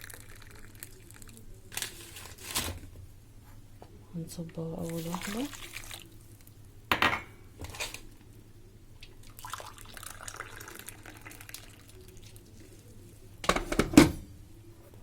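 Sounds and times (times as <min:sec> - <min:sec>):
water pouring into a bowl: 0:04.8 - 0:06.2, 0:09.0 - 0:12.6.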